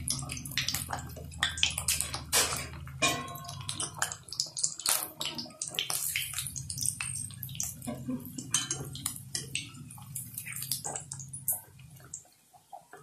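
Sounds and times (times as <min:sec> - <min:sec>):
food deep-frying in hot oil: 0:00.0 - 0:13.0.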